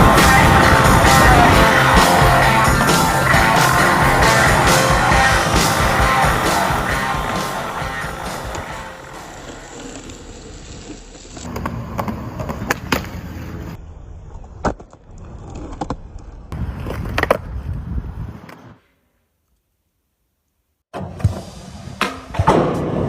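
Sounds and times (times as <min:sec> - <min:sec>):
skateboard clacks: 0:00.0 - 0:13.4
skateboard wheels rolling on concrete: 0:00.0 - 0:18.9.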